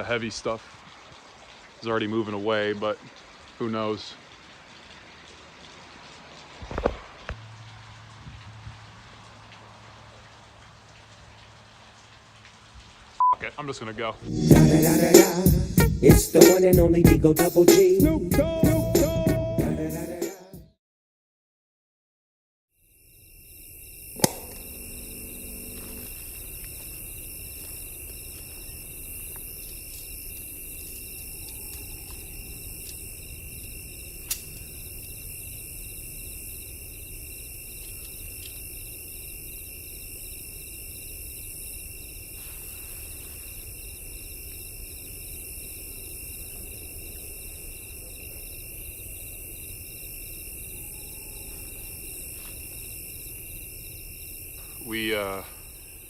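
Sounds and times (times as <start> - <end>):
crickets and insects trilling: 13.5 - 18.2, 22.8 - 56.0
high pulsing chirp: 23.8 - 27.7
sharp click: 24.2 - 24.6.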